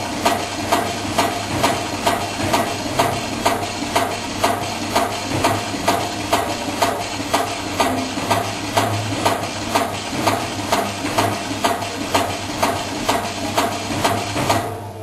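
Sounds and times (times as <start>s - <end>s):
continuous motor hum: 0.0s - 15.0s
rivet machine striking: 0.1s - 14.9s.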